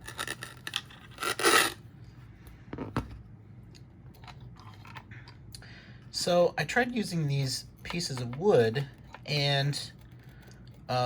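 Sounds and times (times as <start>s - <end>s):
rasping scrape: 0.0s - 1.8s.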